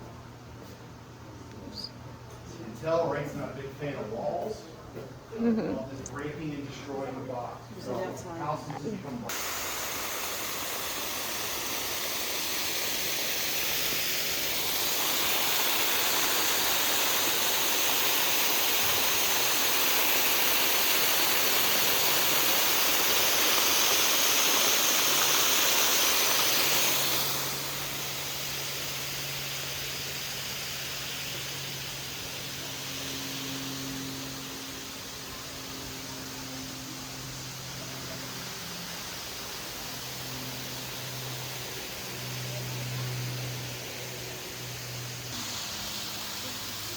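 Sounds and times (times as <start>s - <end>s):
waterfall rushing: 9.3s - 28.6s.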